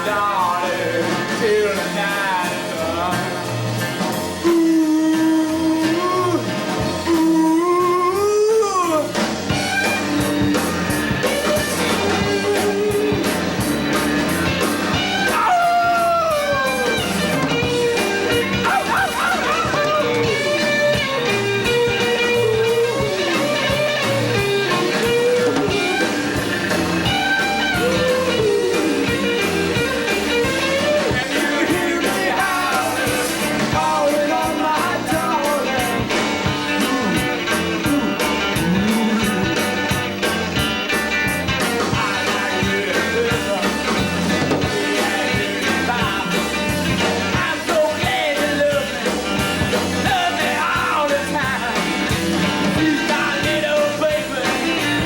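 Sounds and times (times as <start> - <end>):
bass guitar: 0.0 - 55.0
steady drum beat: 0.0 - 55.0
electric guitar with bends: 2.6 - 55.0
person singing: 4.3 - 9.2, 11.9 - 13.4, 15.1 - 21.2, 21.9 - 26.2, 27.1 - 39.7, 41.6 - 49.3, 50.0 - 55.0.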